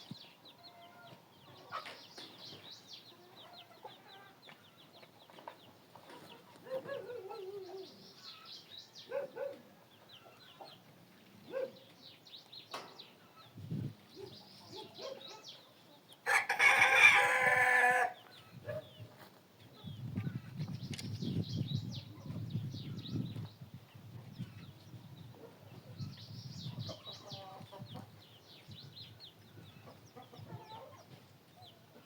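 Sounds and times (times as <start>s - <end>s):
chickens clucking: 0.6s - 7.7s, 9.2s - 11.0s, 25.3s - 28.4s, 29.5s - 32.0s
rooster crowing: 16.3s - 18.2s.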